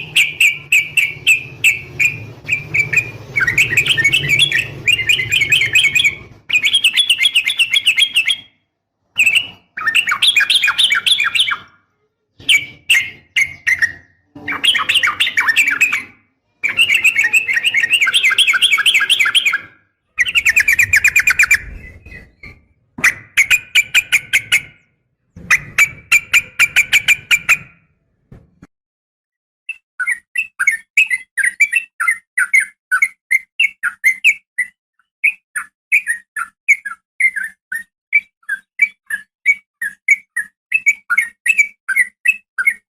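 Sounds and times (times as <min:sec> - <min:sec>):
bird chattering calls: 0:00.0 - 0:08.4, 0:12.4 - 0:27.8.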